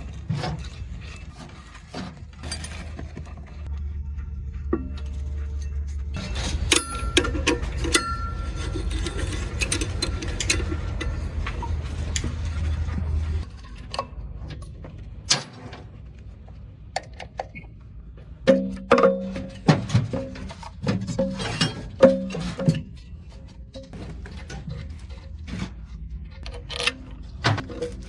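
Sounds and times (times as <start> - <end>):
metal tools clinking on engine parts: 0.1 - 3.7, 4.9 - 15.6, 18.5 - 25.4.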